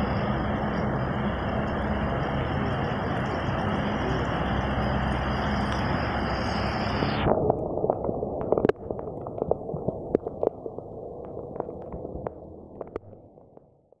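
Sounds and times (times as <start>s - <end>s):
raindrops tapping close by: 0.0s - 6.5s, 7.3s - 14.0s
heavy rain rushing: 0.0s - 9.5s.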